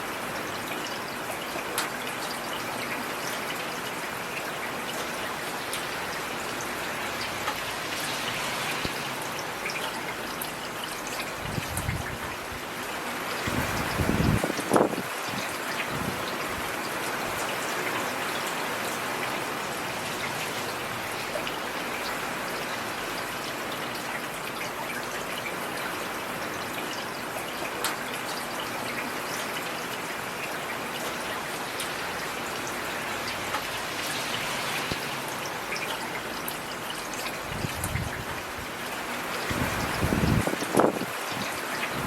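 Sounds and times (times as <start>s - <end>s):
heavy rain: 0.0s - 42.0s.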